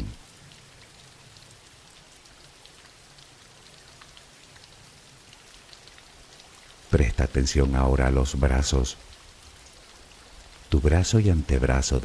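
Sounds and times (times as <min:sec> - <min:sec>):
light rain drop ticks: 0:00.0 - 0:12.0
soft rain falling: 0:00.0 - 0:12.0.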